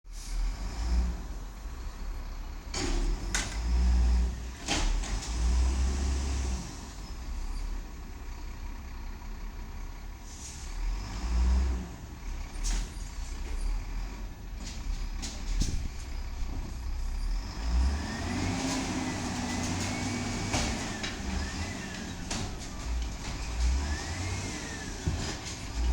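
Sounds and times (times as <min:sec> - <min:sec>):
diesel truck engine revving: 0:00.2 - 0:25.9.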